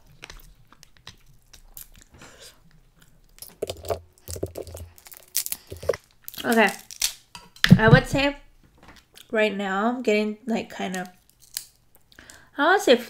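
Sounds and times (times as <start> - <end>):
chewing and mouth sounds: 0.0 - 6.4
crab shell cracking by hand: 0.1 - 2.1, 3.0 - 7.6, 11.0 - 12.1.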